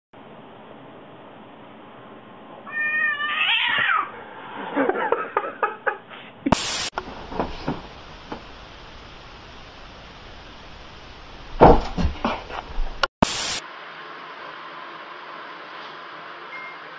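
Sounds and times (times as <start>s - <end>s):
cat yowling: 2.6s - 4.2s.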